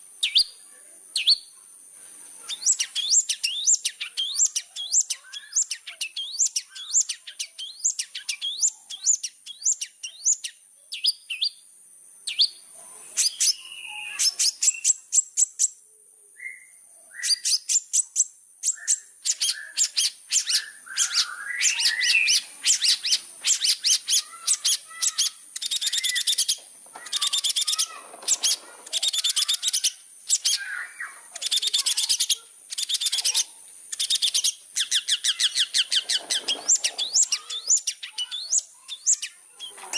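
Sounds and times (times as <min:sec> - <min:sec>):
shrike singing fast chatter: 0:00.0 - 0:15.8, 0:17.2 - 0:39.9.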